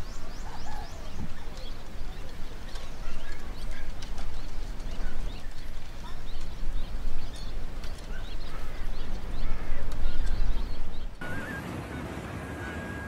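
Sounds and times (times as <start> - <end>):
birds chirping and calling: 0.0 - 12.8.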